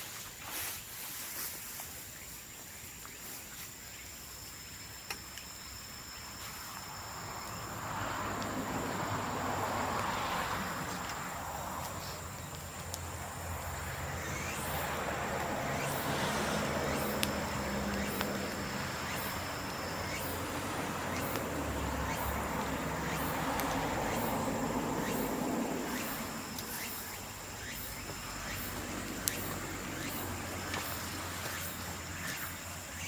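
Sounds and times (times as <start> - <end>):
broad rushing noise with low hum: 6.9 - 33.0
bonfire crackling and popping: 14.9 - 19.0.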